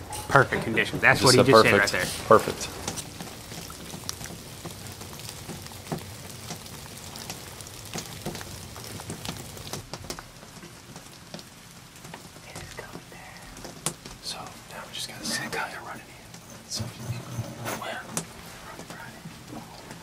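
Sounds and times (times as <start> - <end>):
light rain falling: 0.0 - 20.0
drops ticking on wet leaves: 1.6 - 16.5.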